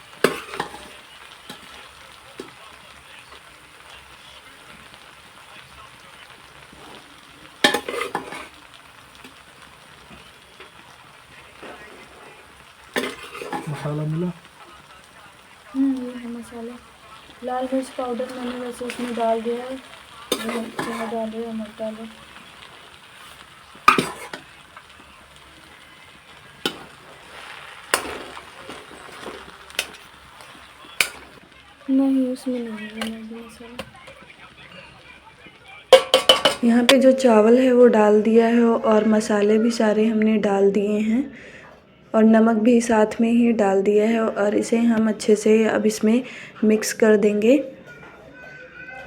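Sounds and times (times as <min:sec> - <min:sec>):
food sizzling in a pan: 0:00.0 - 0:48.9
utensil knocking against metal pan: 0:36.0 - 0:36.6.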